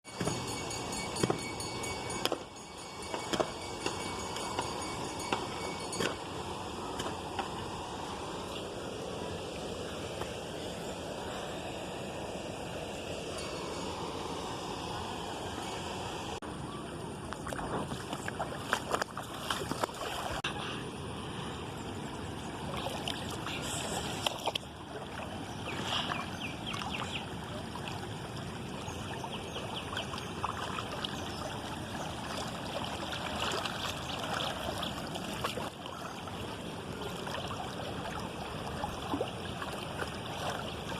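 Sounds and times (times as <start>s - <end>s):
running water splashing: 22.6s - 40.9s.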